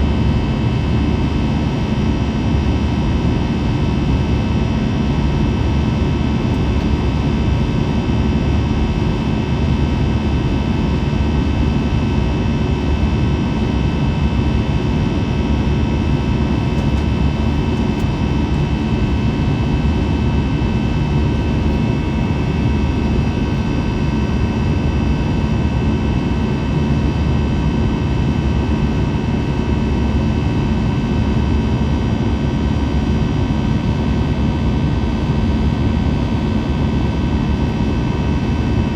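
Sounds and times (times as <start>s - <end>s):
high engine whine: 0.0s - 32.9s
jet cabin airflow rush: 15.3s - 25.4s.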